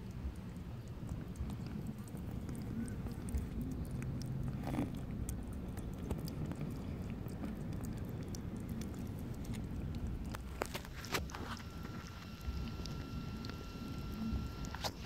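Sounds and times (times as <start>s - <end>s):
kitten chewing food: 0.0s - 15.0s.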